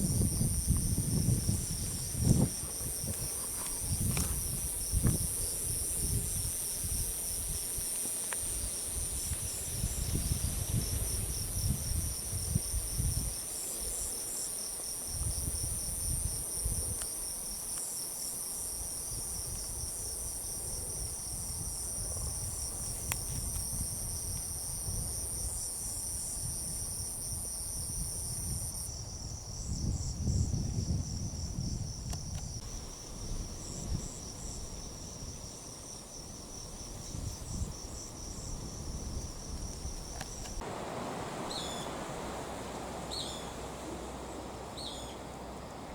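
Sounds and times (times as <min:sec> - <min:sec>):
wind rumbling on microphone: 0:00.0 - 0:14.2, 0:14.9 - 0:17.3, 0:18.7 - 0:45.9
insect pulsing chirp: 0:00.0 - 0:45.9
insect high trill: 0:32.0 - 0:45.9.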